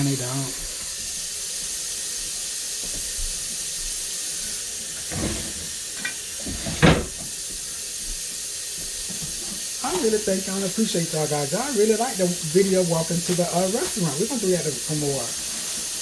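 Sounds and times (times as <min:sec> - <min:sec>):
steam hissing from pots: 0:00.0 - 0:16.0.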